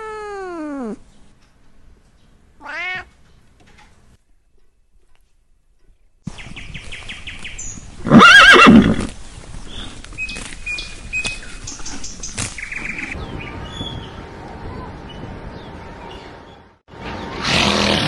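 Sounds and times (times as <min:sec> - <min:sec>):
background noise: 0:00.0 - 0:18.0
horse neighing: 0:08.0 - 0:09.1.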